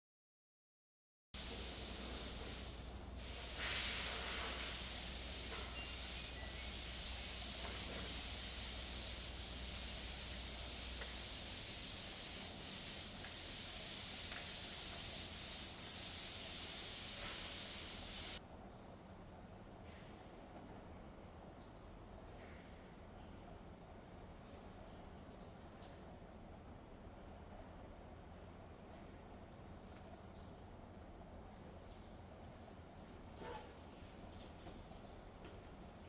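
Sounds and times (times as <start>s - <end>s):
steady hissing: 1.4s - 18.4s.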